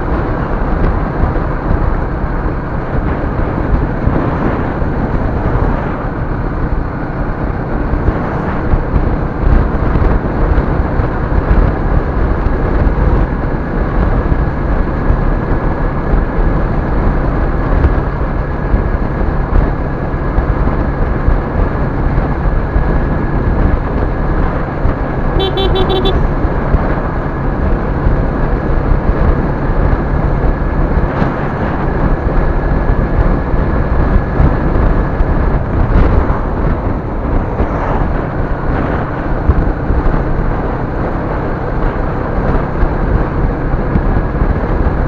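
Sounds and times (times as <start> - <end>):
vehicle road and engine rumble: 0.0 - 45.0
short electronic beep: 25.4 - 26.2.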